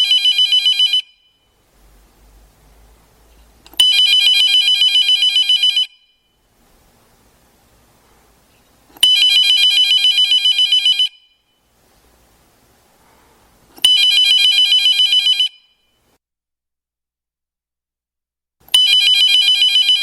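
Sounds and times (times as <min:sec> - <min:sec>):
telephone ringing: 0:00.0 - 0:01.4, 0:03.8 - 0:06.2, 0:09.0 - 0:11.4, 0:13.8 - 0:15.8, 0:18.7 - 0:20.0.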